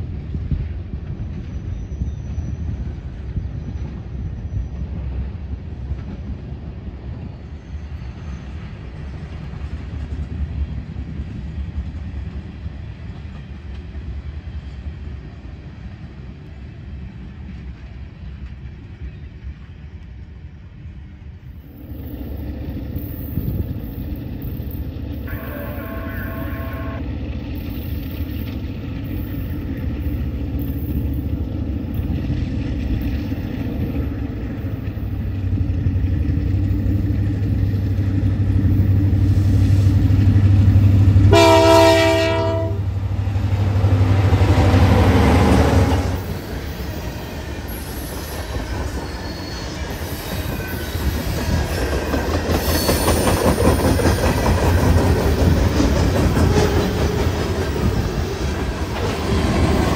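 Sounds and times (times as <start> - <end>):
locomotive engine drone: 21.5 - 50.6
train horn blast: 25.2 - 27.1, 41.2 - 45.0
wheels clattering on rails: 27.2 - 59.9.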